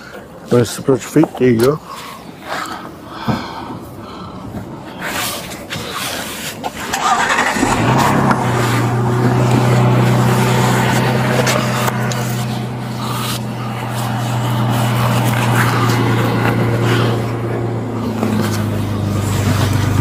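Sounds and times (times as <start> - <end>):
vehicle engine idling: 6.1 - 20.0.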